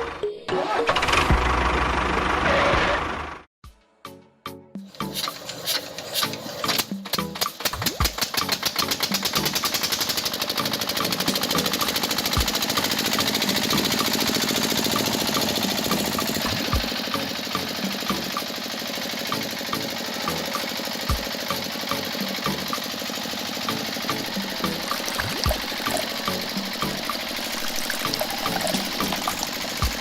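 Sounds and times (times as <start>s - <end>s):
small motor rattling: 5.0s - 30.0s.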